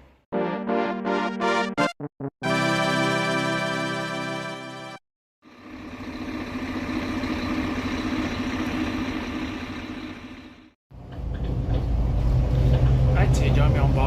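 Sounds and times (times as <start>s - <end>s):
large vehicle engine running: 5.5s - 14.0s.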